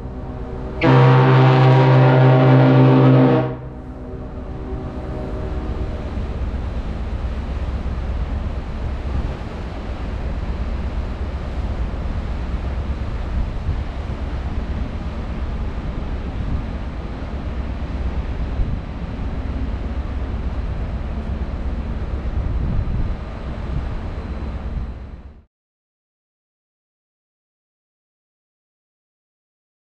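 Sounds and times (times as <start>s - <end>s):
held pitched horn tone: 0.0s - 6.5s
wind buffeting microphone: 12.5s - 25.0s.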